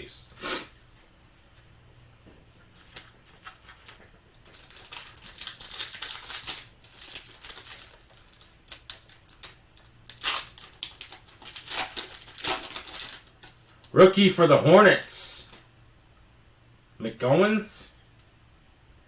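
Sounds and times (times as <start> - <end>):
foil wrapper crinkling: 2.8 - 13.9.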